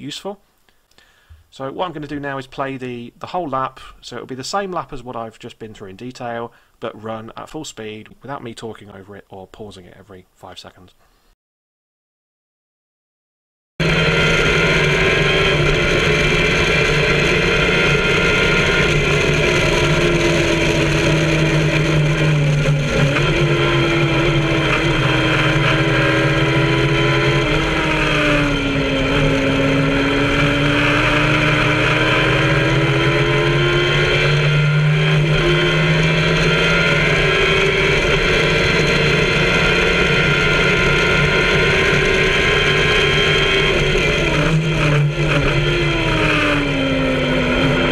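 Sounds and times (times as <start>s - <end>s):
motorcycle engine running hard: 13.8s - 47.9s.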